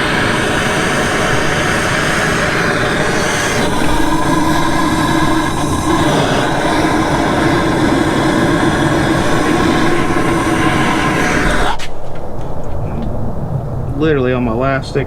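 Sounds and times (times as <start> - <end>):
gas torch roaring: 0.0 - 15.0.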